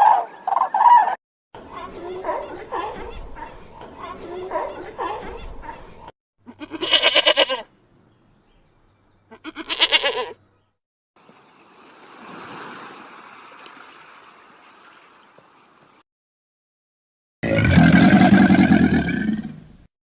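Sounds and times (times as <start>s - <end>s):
goat or sheep bleating: 6.5s - 7.7s, 9.3s - 10.4s.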